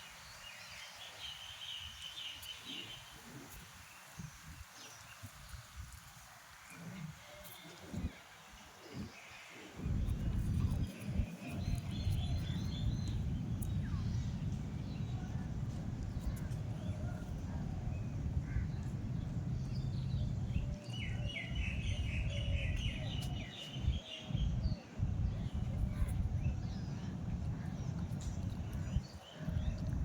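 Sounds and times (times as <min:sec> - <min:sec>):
steady low rumble: 0:09.8 - 0:30.0.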